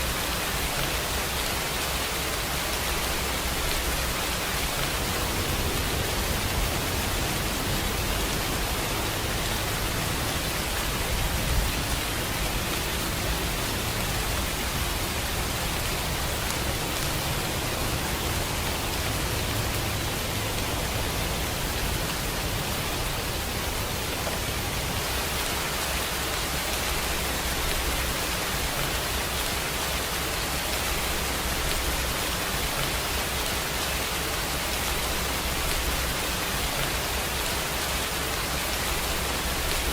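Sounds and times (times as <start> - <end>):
rain hissing: 0.0 - 39.9.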